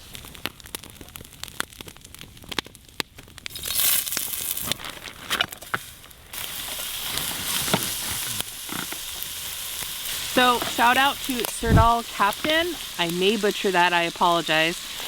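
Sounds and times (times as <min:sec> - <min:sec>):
campfire crackling and popping: 0:00.0 - 0:15.0
cooking oil sizzling: 0:03.4 - 0:15.0.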